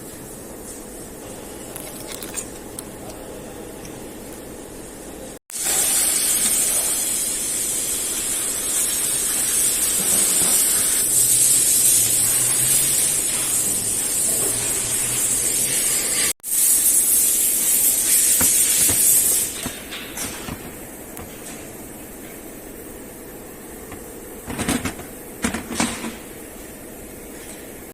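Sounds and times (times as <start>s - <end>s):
pressurised spray hissing: 5.6s - 21.4s.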